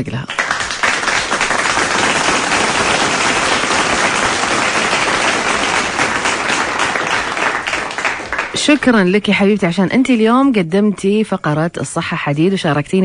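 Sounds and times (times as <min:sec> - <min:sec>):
many hands clapping: 0:00.2 - 0:09.1.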